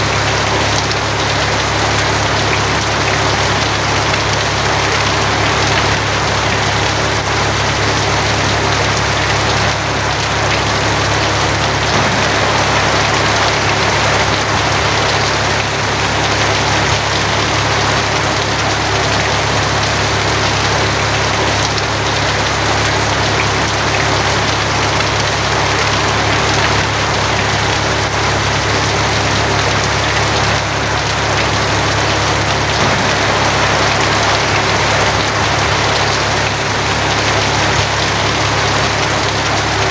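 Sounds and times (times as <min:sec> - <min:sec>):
heavy rain on a tin roof: 0:00.0 - 0:39.9
low hum: 0:11.9 - 0:16.5, 0:32.6 - 0:37.1.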